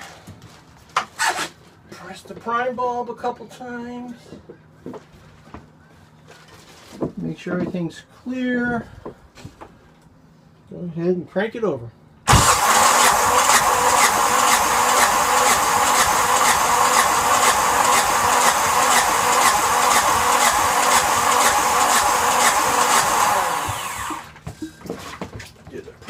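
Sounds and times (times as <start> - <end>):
diesel engine cranking: 12.3 - 24.4.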